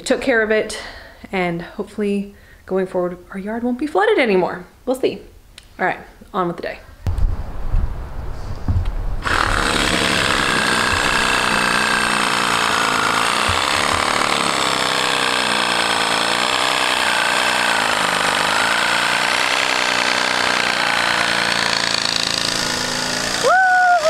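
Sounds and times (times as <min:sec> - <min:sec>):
motor running with wavering pitch: 0:09.2 - 0:24.0.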